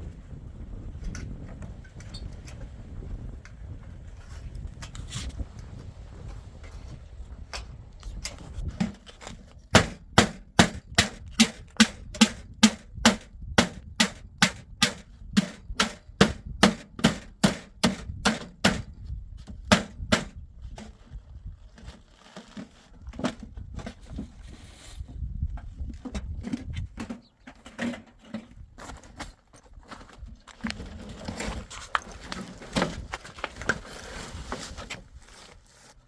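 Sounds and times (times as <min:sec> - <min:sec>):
hammer blows on wood: 0:09.8 - 0:18.9.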